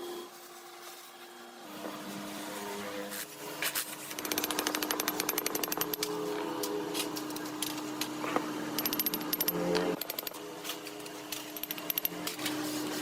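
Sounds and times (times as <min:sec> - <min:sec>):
rattle of strikes on metal: 0:04.2 - 0:06.1.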